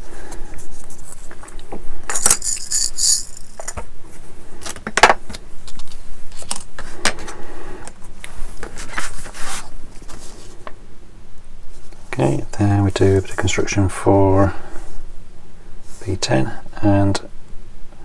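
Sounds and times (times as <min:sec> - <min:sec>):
clicks and clinks of small parts: 0:02.1 - 0:03.8.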